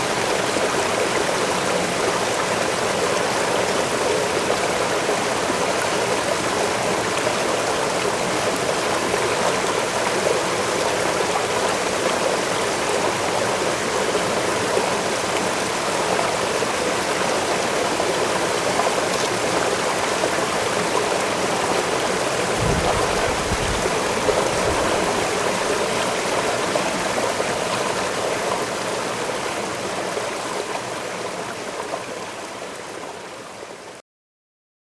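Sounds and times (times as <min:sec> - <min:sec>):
waterfall rushing: 0:17.6 - 0:28.4.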